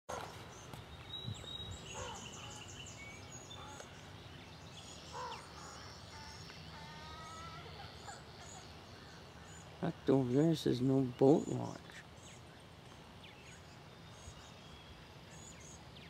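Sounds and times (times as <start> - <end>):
wild birds chirping and singing: 0.1 - 16.0.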